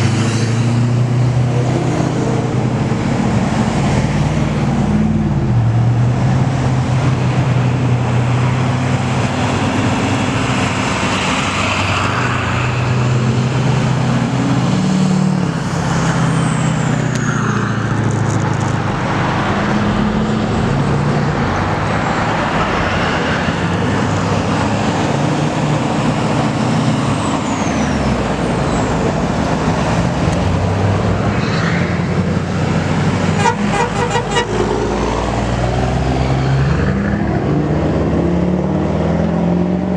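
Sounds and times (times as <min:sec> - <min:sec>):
diesel trucks driving past: 0:00.0 - 0:39.9
truck horns: 0:33.2 - 0:35.0.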